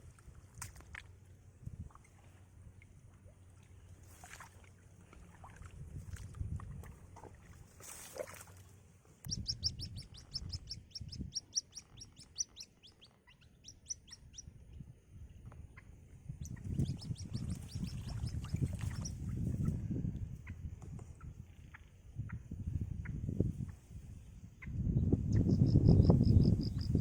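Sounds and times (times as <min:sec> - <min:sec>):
young birds chirping: 0:09.3 - 0:14.5, 0:15.7 - 0:19.7.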